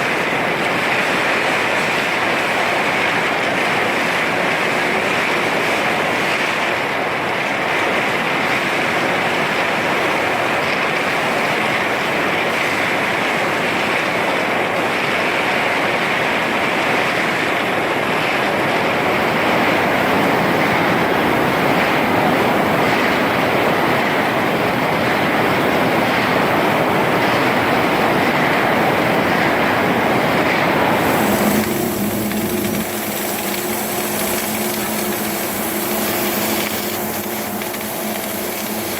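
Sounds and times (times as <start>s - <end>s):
low hum with high hiss: 29.8s - 38.9s
arc welding hissing: 30.8s - 38.9s.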